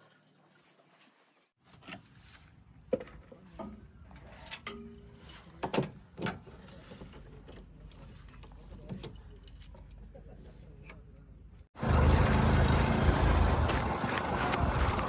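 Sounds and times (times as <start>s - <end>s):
diesel engine rumbling: 11.8s - 15.0s.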